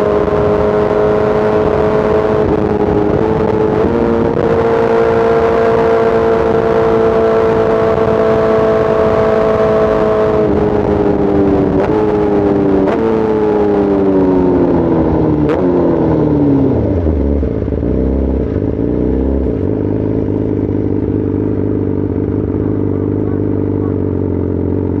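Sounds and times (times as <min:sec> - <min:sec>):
motorcycle engine slowing down: 0:13.6 - 0:25.0.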